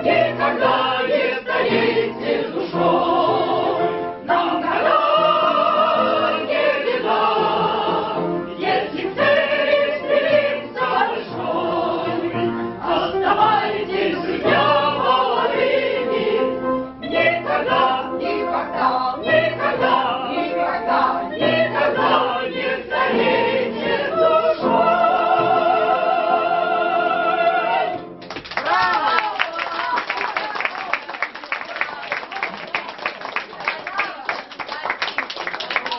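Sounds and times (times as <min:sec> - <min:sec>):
voices singing operatically: 0:00.0 - 0:28.0.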